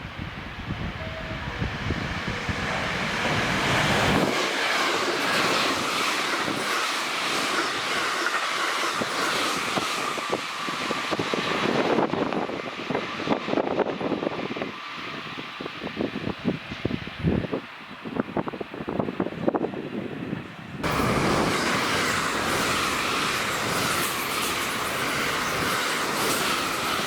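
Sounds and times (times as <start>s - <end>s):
train rushing past: 0.0s - 27.0s
wheels clicking over rail joints: 20.8s - 27.0s.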